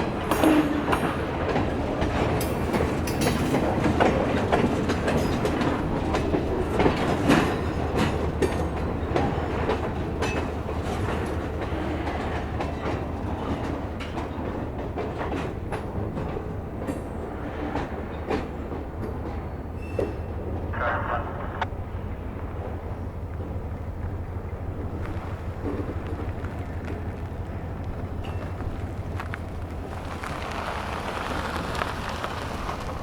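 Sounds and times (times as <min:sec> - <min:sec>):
train wheels clicking over rail joints: 0:00.0 - 0:20.8, 0:21.7 - 0:33.0
freight train rolling by: 0:00.0 - 0:33.0.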